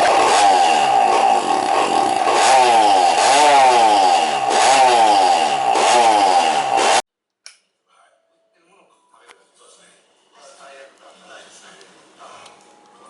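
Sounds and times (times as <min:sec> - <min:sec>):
two-stroke engine revving: 0:00.0 - 0:07.0.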